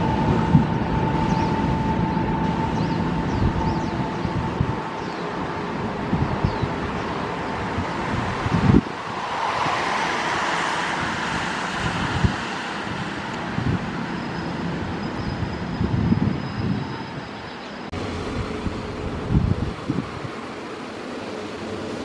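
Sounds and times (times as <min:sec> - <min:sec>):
train rushing past: 0:00.0 - 0:22.0
wind thumping on microphone: 0:07.6 - 0:14.0, 0:18.2 - 0:20.4.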